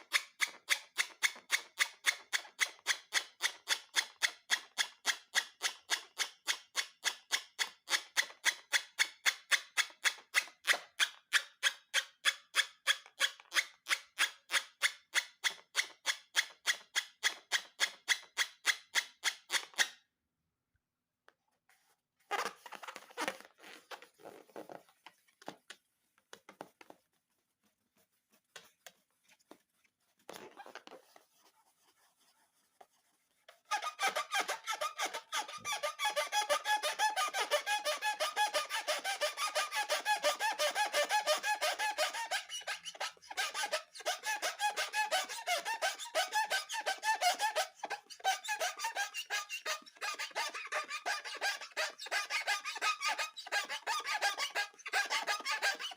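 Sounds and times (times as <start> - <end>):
faint clicks and rubs: 21.3 - 33.9
balloon rubber squeaking: 22.2 - 25.7, 30.2 - 31.4, 33.5 - 55.9.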